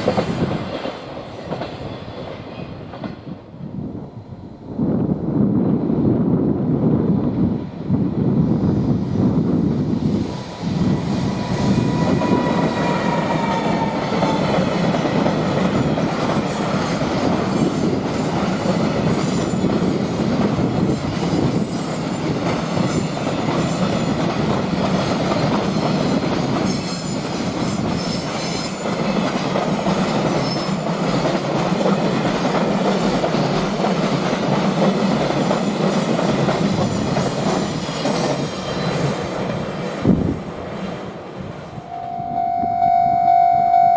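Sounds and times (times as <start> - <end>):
train wheels clacking on rails: 0.0 - 3.4, 10.0 - 41.0
faint falling whine: 41.9 - 43.9.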